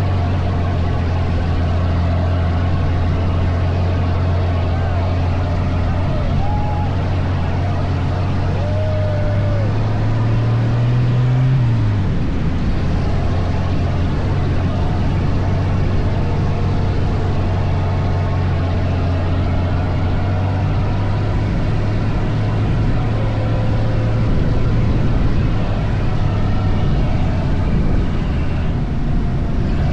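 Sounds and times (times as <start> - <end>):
dune buggy engine running: 0.0 - 29.9.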